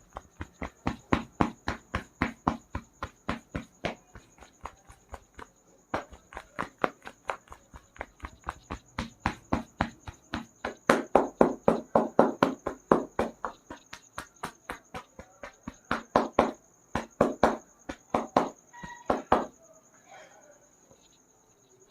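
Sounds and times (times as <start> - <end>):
rhythmic hand slapping massage: 0.0 - 19.6.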